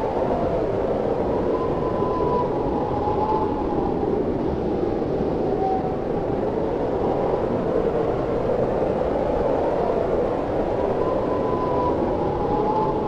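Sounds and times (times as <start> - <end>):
blizzard wind howling: 0.0 - 13.0
thin whistling tone: 11.0 - 13.0.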